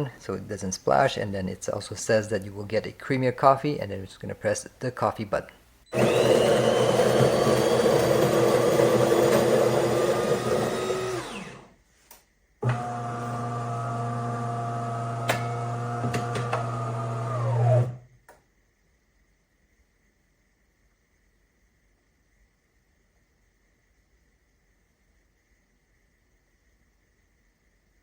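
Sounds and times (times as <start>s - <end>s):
burr grinder grinding coffee beans: 5.9s - 11.8s, 12.6s - 18.1s.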